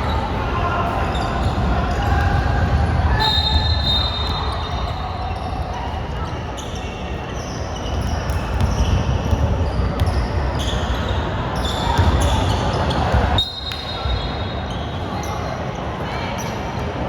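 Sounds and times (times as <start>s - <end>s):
sneakers squeaking: 0.0s - 15.7s
murmur of voices: 0.0s - 17.0s
basketball bouncing on court: 7.8s - 10.9s, 11.8s - 14.2s.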